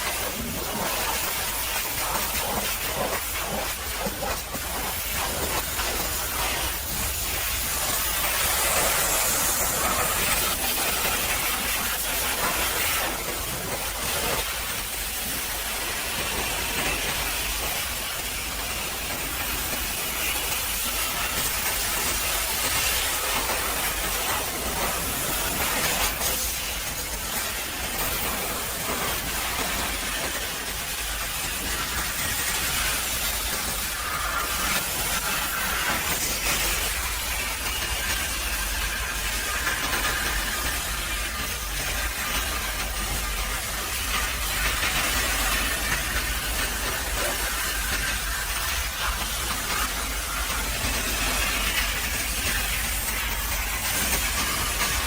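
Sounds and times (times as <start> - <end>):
pressure washer water jet hissing: 0.0 - 55.0.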